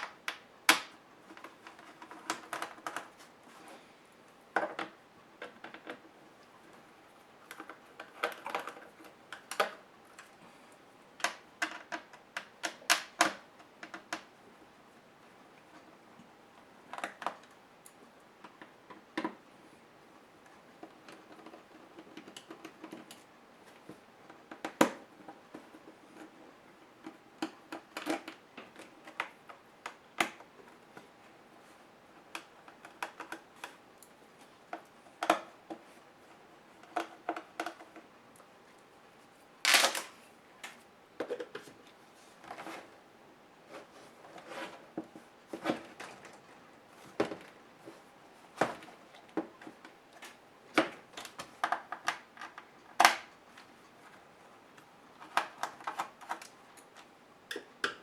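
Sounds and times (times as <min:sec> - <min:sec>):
tools clicking on plastic laptop case: 0:32.2 - 0:34.1.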